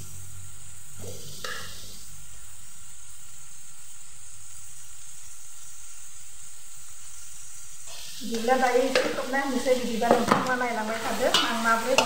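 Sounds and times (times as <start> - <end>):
chicken sizzling in a pot: 0.0 - 12.0.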